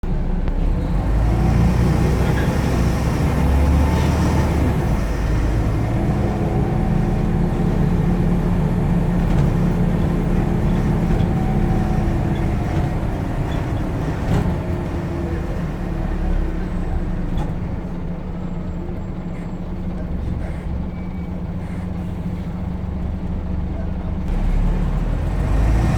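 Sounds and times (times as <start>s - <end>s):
bus diesel engine running: 0.0s - 25.9s.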